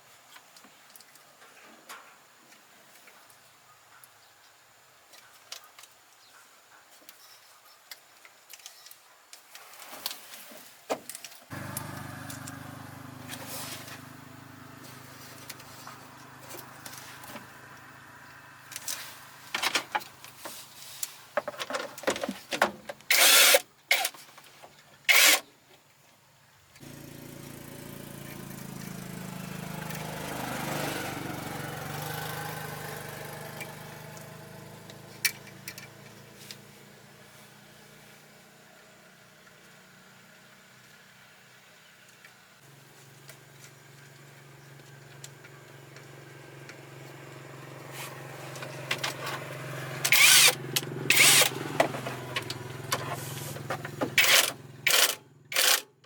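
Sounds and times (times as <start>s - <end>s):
motor running: 11.5s - 17.9s, 26.8s - 36.2s, 47.9s - 55.8s
engine-like running sound: 11.5s - 20.6s, 26.8s - 38.2s, 42.6s - 55.9s.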